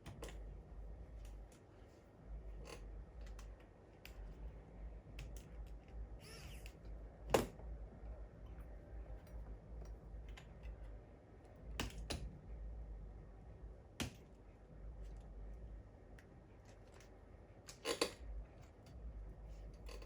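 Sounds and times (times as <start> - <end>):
steady low hum: 0.0 - 20.0
tools clicking on laptop parts: 2.6 - 4.4, 11.5 - 12.4.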